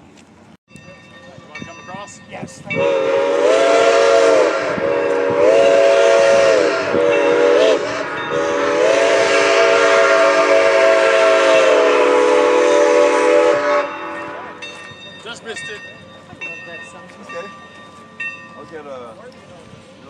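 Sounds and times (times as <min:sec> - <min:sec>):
steady steam hiss: 0:02.0 - 0:20.0
steam whistle blasts: 0:02.7 - 0:14.6.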